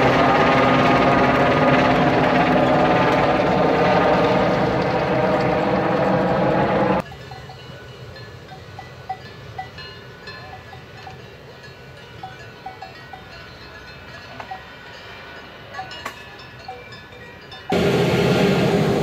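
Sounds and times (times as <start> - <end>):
loud train noise: 0.0 - 19.0
cowbells clanking: 7.0 - 17.8.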